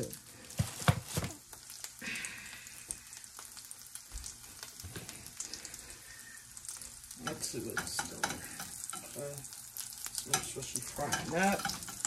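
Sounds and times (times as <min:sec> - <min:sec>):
patty sizzling in oil: 0:00.0 - 0:12.0.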